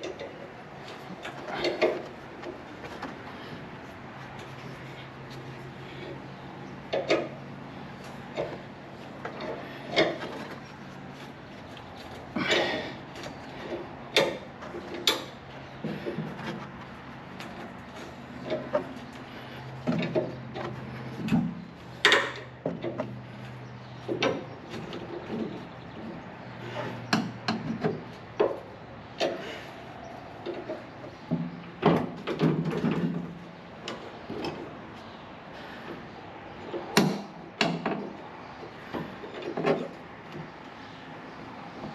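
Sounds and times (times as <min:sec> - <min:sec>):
tools and parts clattering: 0:00.0 - 0:03.6, 0:08.3 - 0:23.2, 0:30.4 - 0:34.8
steady low hum: 0:00.0 - 0:41.9
tools knocking and clanking: 0:19.8 - 0:23.2, 0:27.0 - 0:29.4, 0:30.4 - 0:34.6, 0:36.7 - 0:38.2.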